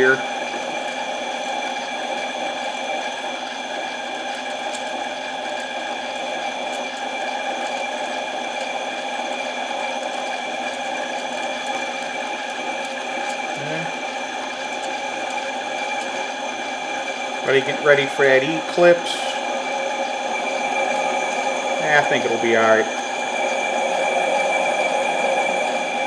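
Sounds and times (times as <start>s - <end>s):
lathe motor whining: 0.0s - 26.0s.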